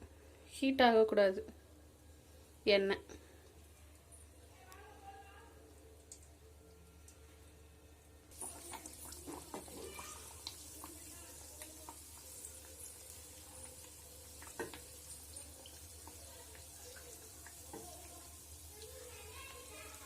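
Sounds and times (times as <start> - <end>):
oil sizzling: 8.3 - 20.0.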